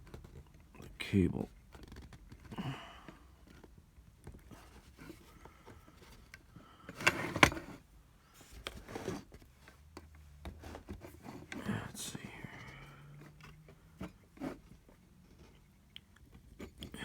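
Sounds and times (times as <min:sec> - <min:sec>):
faint rubbing and ticks: 0:01.4 - 0:02.5.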